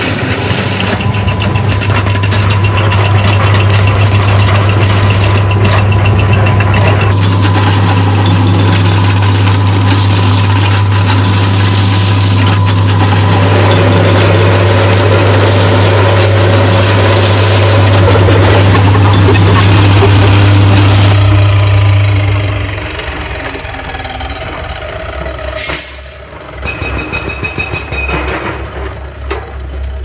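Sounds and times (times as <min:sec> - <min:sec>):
industrial machinery running: 0:00.0 - 0:30.0
mid-pitched drone: 0:12.5 - 0:25.5.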